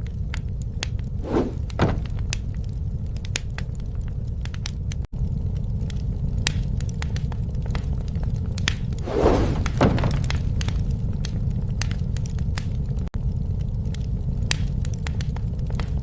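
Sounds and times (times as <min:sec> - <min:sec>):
campfire flames rumbling: 0:00.0 - 0:16.0
fire crackles and pops: 0:00.0 - 0:16.0.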